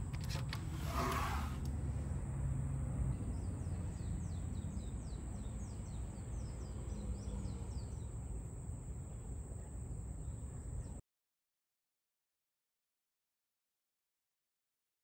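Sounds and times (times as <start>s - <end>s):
low outdoor rumble: 0.0s - 11.0s
bird chirping: 3.1s - 8.2s.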